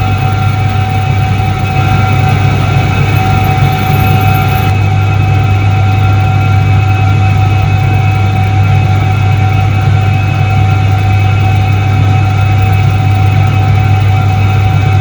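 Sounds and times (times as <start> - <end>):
high motor whine: 0.0 - 6.6
washing machine motor humming: 0.1 - 4.9.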